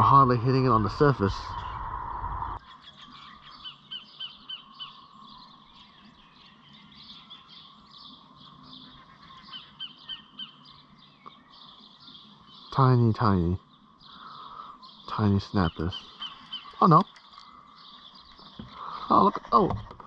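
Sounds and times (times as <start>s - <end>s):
bird chirping in quick runs: 14.8s - 19.6s.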